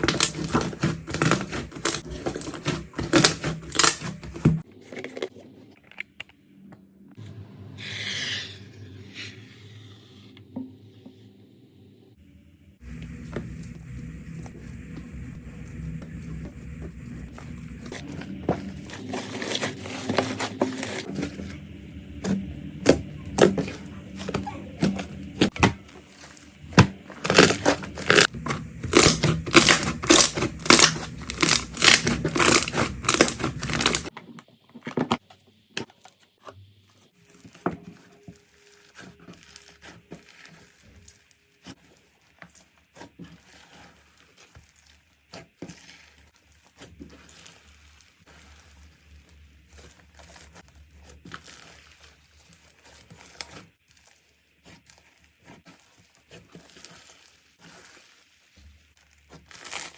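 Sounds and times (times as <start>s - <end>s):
slime squishing and crackling: 0.0s - 4.7s, 22.9s - 34.2s, 37.1s - 59.9s.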